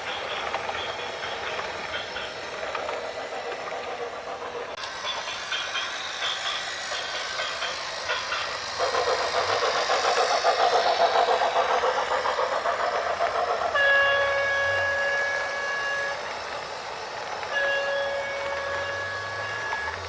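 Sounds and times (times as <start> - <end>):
rapid rhythmic clattering: 0.0 - 13.8.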